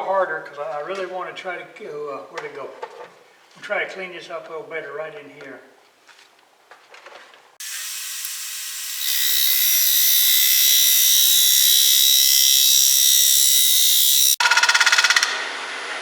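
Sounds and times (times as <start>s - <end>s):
lathe cutter scraping wood: 7.6s - 14.4s
cutter pulsing on uneven wood: 7.6s - 15.2s.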